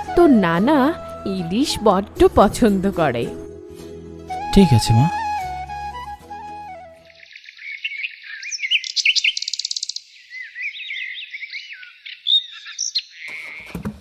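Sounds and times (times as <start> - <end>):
songbirds chirping: 6.7 - 14.0.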